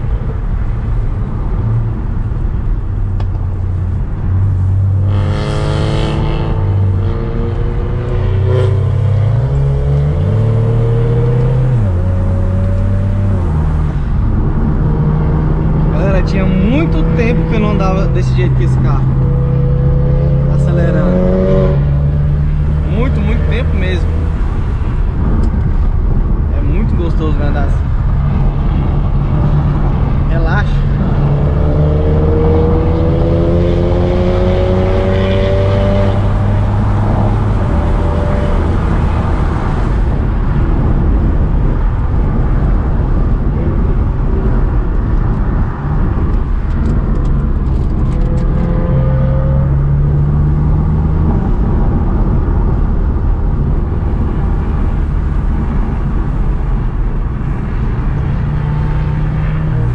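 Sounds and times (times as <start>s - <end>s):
car engine accelerating: 0.0s - 59.9s
road noise: 0.0s - 59.9s.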